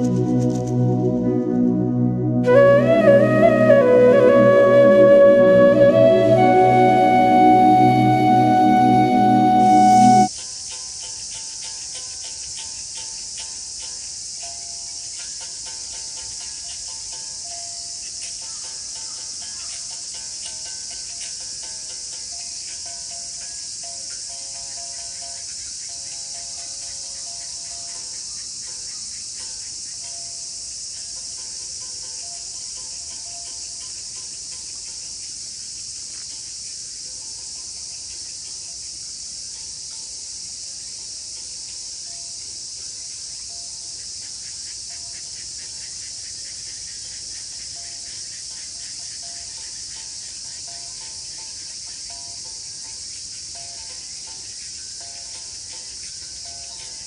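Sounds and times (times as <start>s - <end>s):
faint low tonal notes: 0.0s - 10.3s
insects chirping: 9.7s - 57.0s.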